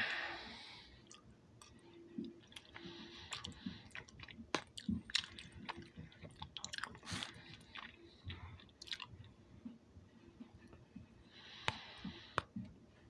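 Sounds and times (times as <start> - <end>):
person chewing: 1.0 - 9.3.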